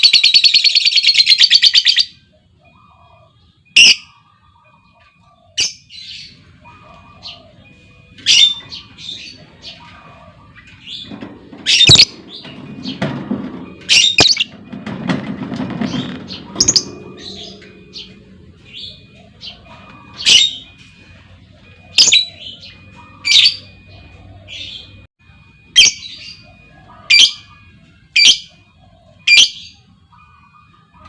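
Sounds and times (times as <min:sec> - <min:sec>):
lovebirds chattering trill: 0:00.0 - 0:14.6, 0:15.7 - 0:25.1
lovebirds squawking: 0:05.0 - 0:14.6, 0:15.7 - 0:25.0, 0:25.8 - 0:27.6.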